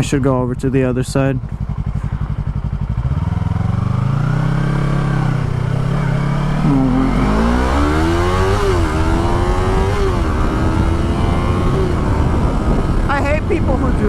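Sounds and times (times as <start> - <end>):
motorcycle engine accelerating: 0.0 - 14.0
wind rush: 7.2 - 14.0.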